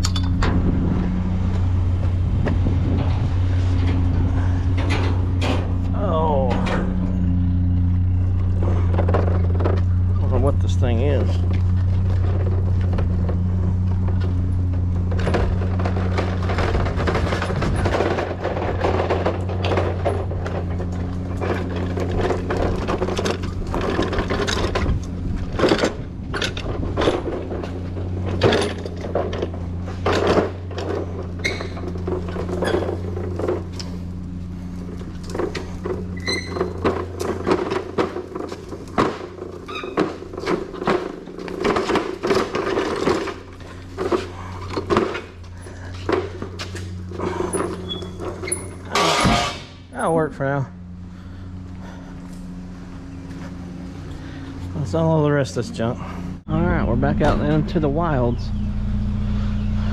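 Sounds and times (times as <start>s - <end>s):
steady low hum: 0.0s - 59.9s
scrap pieces clanking: 8.5s - 49.8s.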